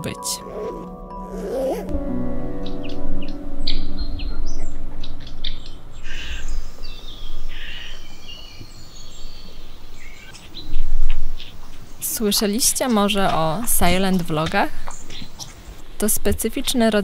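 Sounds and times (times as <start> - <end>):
sustained music notes: 0.0 - 8.1.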